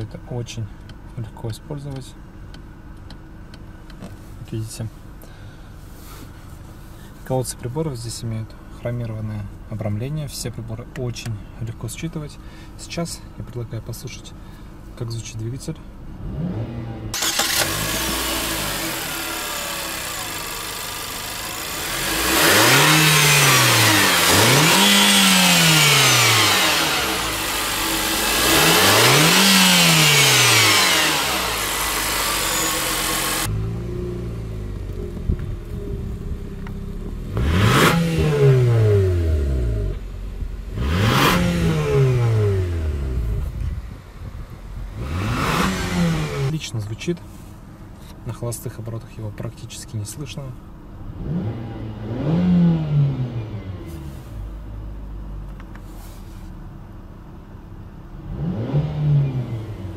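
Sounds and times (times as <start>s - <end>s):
car engine revving: 16.1s - 43.6s, 44.8s - 46.6s, 51.0s - 54.4s, 58.2s - 59.9s.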